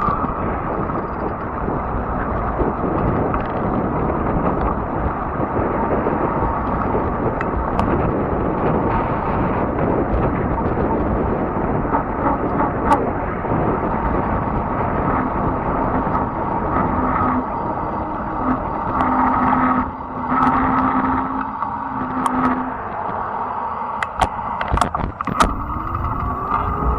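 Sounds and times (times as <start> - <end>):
tyre and drivetrain noise: 0.0 - 23.4
faint steady whine: 0.0 - 26.9
wind rushing over microphone: 0.0 - 26.9.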